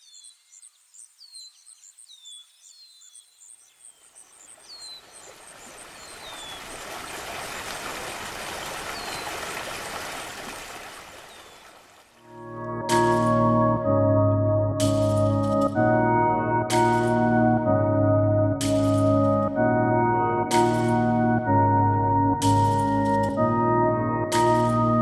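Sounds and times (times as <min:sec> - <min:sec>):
birds chirping: 0:00.0 - 0:11.8.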